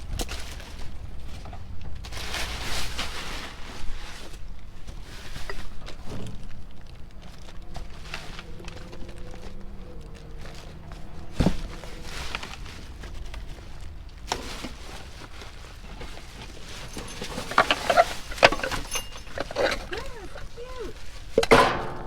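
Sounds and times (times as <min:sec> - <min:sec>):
trash rustling in dumpster: 0:00.0 - 0:22.0
clattering knocks: 0:15.9 - 0:22.0.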